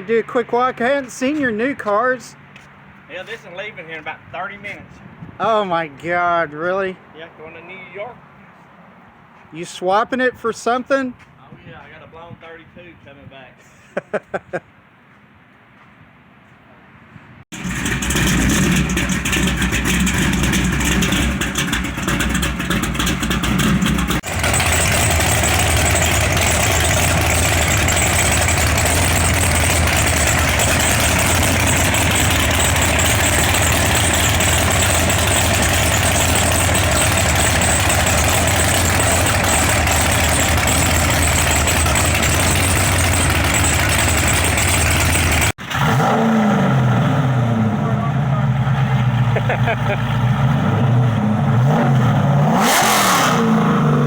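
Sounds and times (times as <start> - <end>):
car engine idling: 17.5 - 45.9, 47.4 - 51.6.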